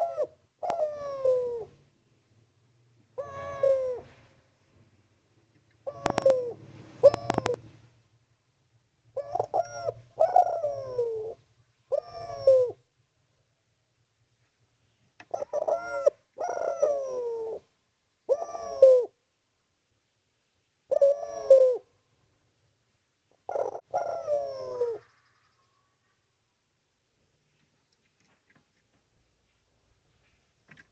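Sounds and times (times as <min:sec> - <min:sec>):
dove cooing: 0:00.0 - 0:01.8, 0:03.2 - 0:04.2, 0:05.8 - 0:07.7, 0:09.1 - 0:12.9, 0:15.2 - 0:17.7, 0:18.3 - 0:19.2, 0:20.9 - 0:21.9, 0:23.4 - 0:25.9.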